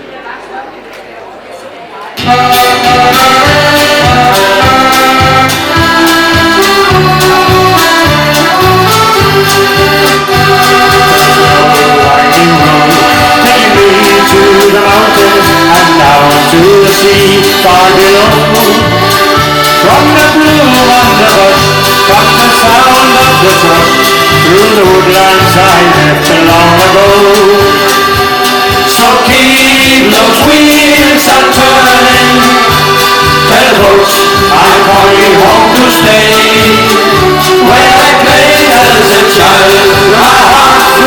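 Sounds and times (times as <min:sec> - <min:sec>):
accordion: 0:02.2 - 0:41.0
steady bass beat: 0:02.3 - 0:41.0.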